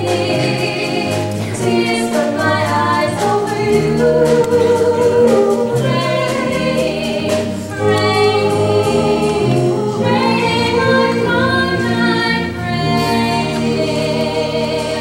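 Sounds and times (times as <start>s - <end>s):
musical accompaniment: 0.0s - 15.0s
voices singing long notes: 0.0s - 15.0s.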